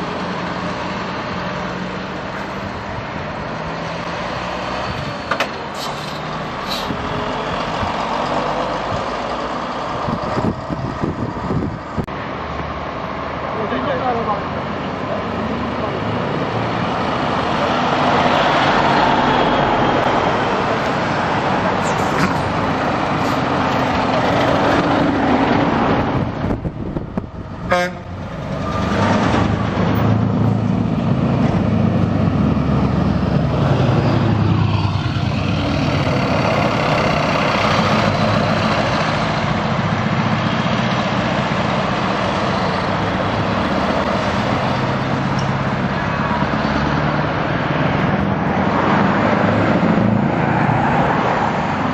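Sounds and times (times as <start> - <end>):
trucks driving past: 0.0 - 51.9
short horn toot: 27.7 - 28.1.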